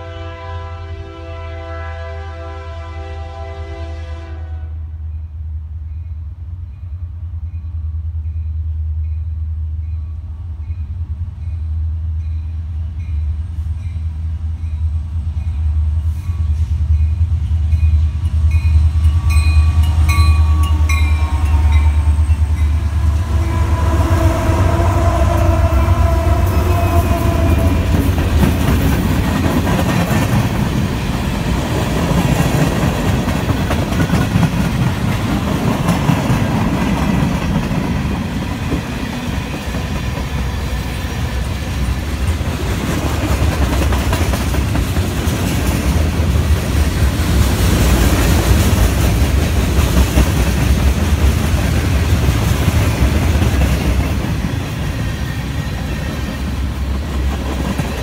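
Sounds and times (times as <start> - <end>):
diesel locomotives rumbling past: 0.0 - 58.0
freight cars rolling on rails: 14.5 - 58.0.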